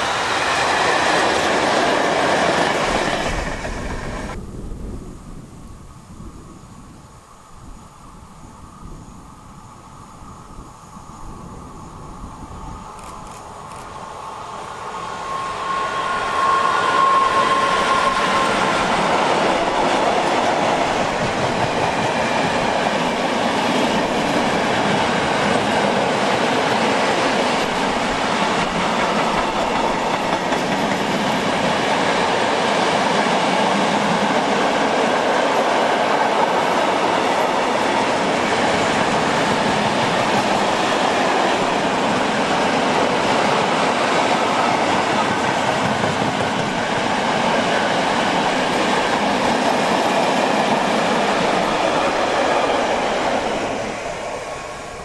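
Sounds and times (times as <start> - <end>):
wheel-on-rail noise: 11.2 - 55.0.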